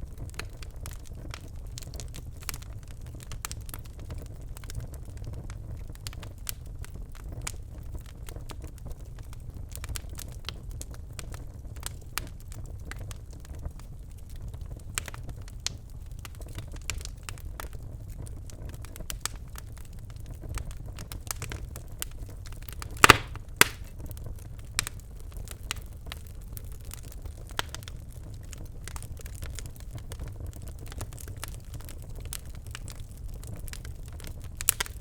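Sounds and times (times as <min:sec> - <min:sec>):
fire crackling and popping: 0:00.0 - 0:35.0
low rumble of flame: 0:00.0 - 0:35.0
loud sharp fire pop: 0:23.0 - 0:23.9.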